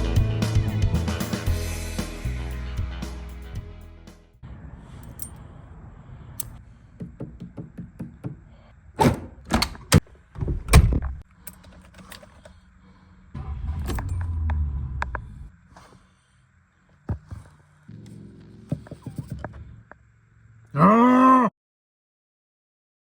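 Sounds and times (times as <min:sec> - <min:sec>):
light handling clicks and knocks: 0:06.4 - 0:12.6
low rumble: 0:13.3 - 0:15.6.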